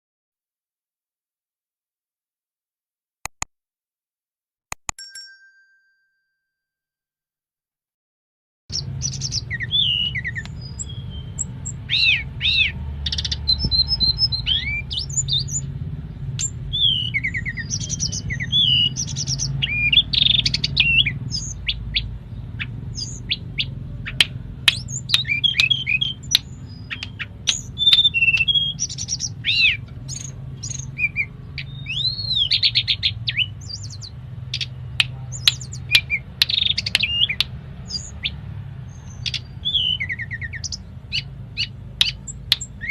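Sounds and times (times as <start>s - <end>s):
bird singing whistled song: 8.7s - 15.7s, 16.4s - 42.9s.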